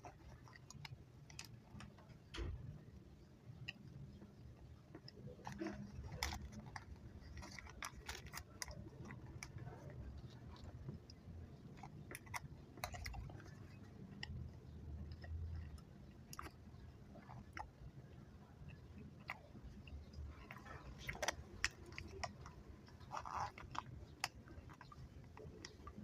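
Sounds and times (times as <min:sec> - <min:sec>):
wet chewing clicks and smacks: 0:00.0 - 0:26.0.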